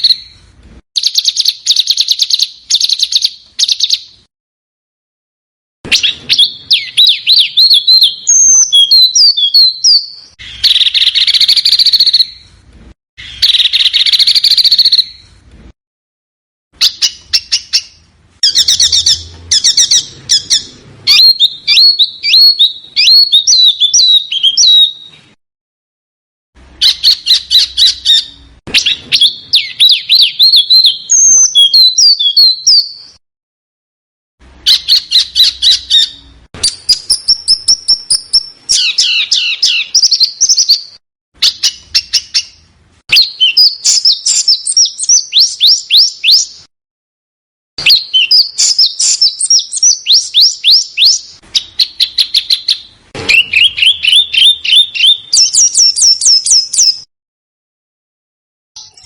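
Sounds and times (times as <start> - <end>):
songbirds chirping and trilling: 0.0 - 4.3, 5.9 - 15.4, 16.8 - 25.4, 26.6 - 33.2, 34.4 - 46.7, 47.8 - 57.1
harsh rasping bird calls: 16.8 - 25.1.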